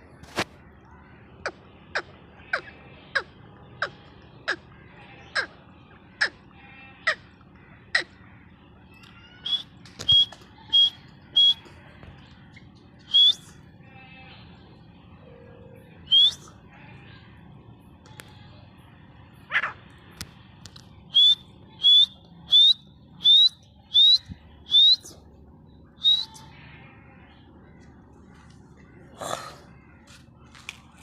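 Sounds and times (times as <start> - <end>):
partridge calling: 21.1 - 25.2, 26.0 - 26.4.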